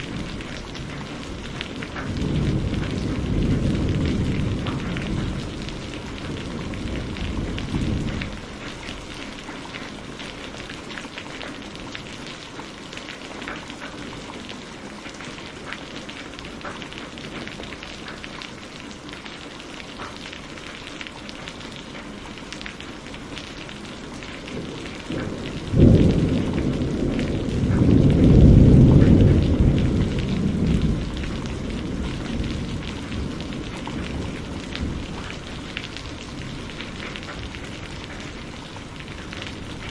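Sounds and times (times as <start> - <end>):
thunderclap: 0.0 - 8.7, 24.5 - 39.9
thunder rumbling: 0.0 - 12.2, 23.5 - 39.9
rain falling: 0.0 - 39.9.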